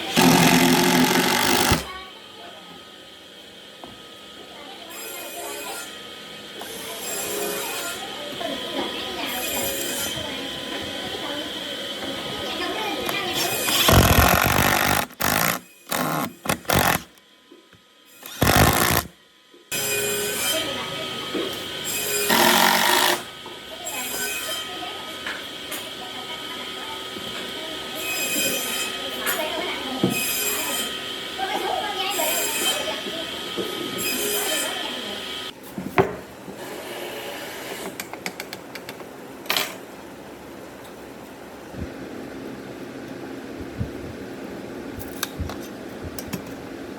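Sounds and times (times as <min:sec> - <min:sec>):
machine running: 0:00.0 - 0:01.9, 0:13.0 - 0:17.1, 0:18.2 - 0:19.1
power tool cutting wood: 0:00.1 - 0:01.9, 0:13.1 - 0:17.2, 0:18.2 - 0:19.1, 0:22.0 - 0:23.3.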